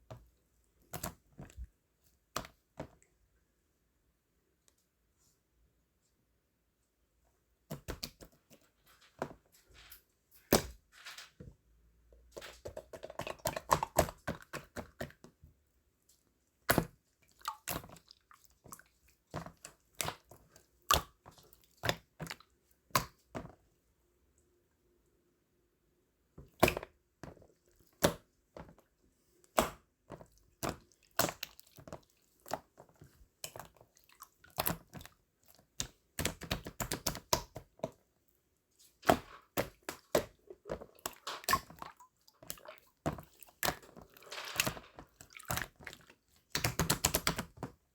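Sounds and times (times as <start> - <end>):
small objects clicking and tapping: 42.4 - 45.9.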